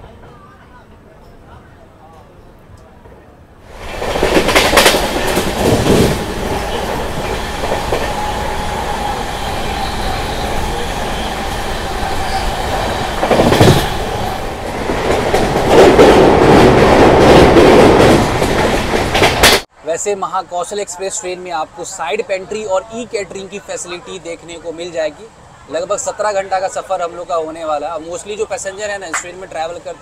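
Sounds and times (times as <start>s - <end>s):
train rail rumble: 3.0s - 19.7s
wheels clicking over rail joints: 3.8s - 8.2s.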